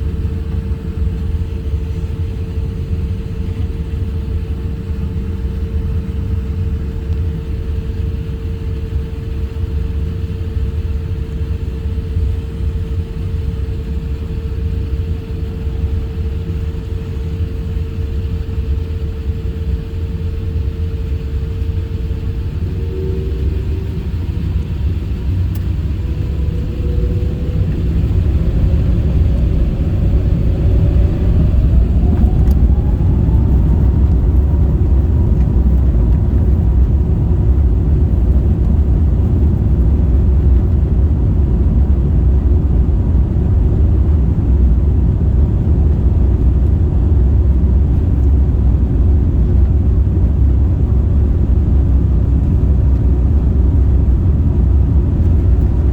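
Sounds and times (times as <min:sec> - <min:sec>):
rising engine whine: 0:00.0 - 0:55.9
jet engines spooling up: 0:20.5 - 0:40.8.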